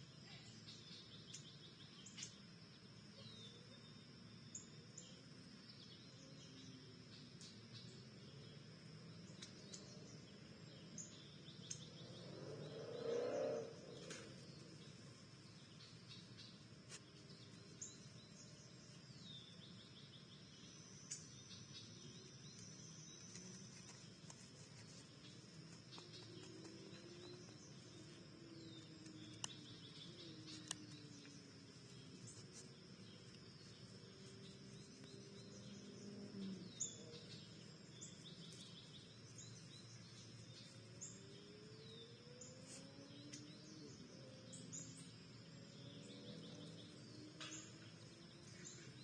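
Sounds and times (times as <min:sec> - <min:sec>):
high insect trill: 0:00.0 - 0:49.0
bird chirps: 0:00.2 - 0:49.0
low whirring sound: 0:11.6 - 0:16.6.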